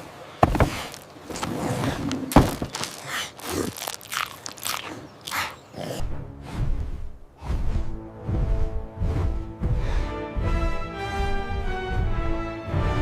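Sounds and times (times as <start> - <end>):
short crunching noises: 0.4 - 5.6.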